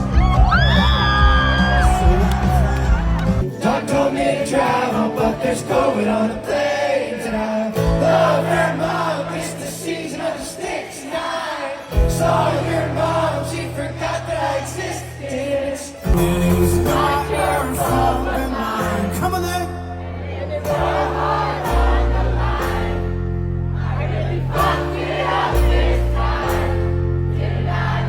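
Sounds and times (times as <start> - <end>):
live band music: 0.0 - 5.1, 12.0 - 13.2, 16.1 - 19.6
group of voices singing: 1.5 - 23.2, 23.8 - 28.0.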